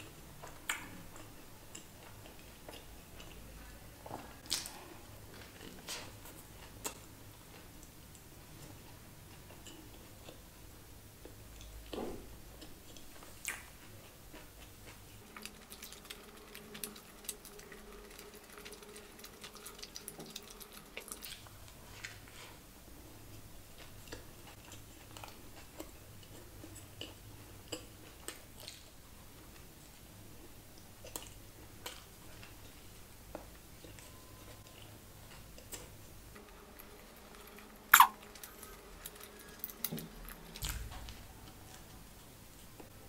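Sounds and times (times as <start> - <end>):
chewing crispy burger: 0.0 - 42.9
faint steady hum: 0.0 - 43.0
wet mouth clicks and smacks: 38.0 - 38.2.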